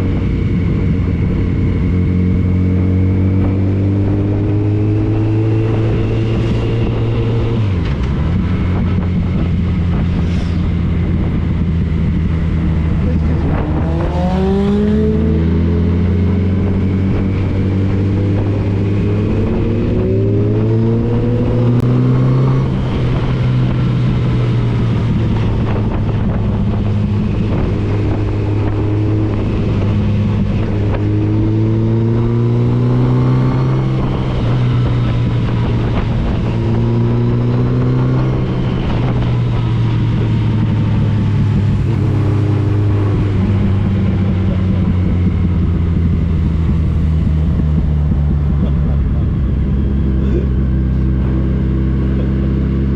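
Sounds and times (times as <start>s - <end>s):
motorcycle engine accelerating: 0.0s - 52.9s
wind noise: 0.0s - 52.9s.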